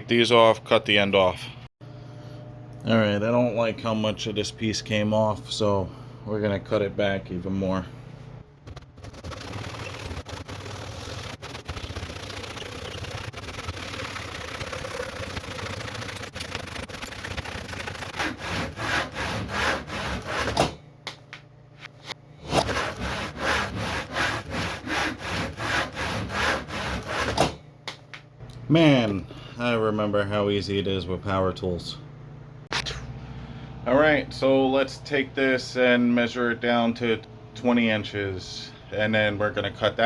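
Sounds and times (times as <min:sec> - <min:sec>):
hand saw cutting wood: 0:17.6 - 0:20.8, 0:22.4 - 0:27.6.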